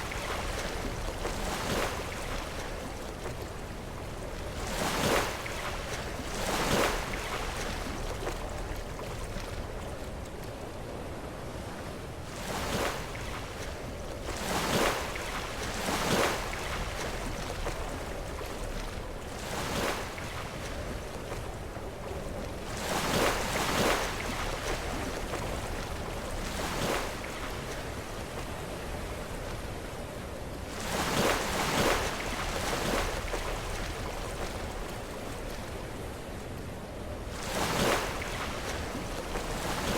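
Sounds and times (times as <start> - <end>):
surf washing: 12.3 - 39.9.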